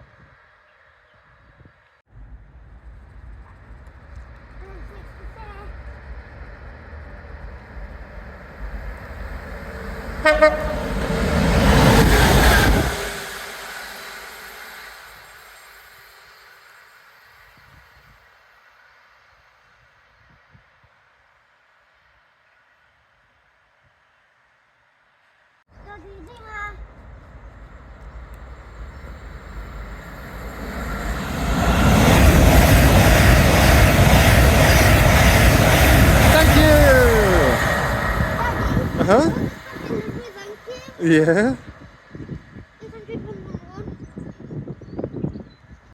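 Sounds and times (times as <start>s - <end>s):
train rushing past: 2.1s - 19.6s, 25.7s - 45.1s
train horn toot: 10.2s - 11.2s.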